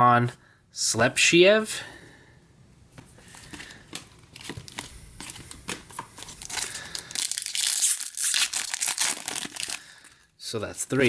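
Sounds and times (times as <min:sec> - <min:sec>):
foil wrapper crinkling and tearing: 0:06.2 - 0:10.2.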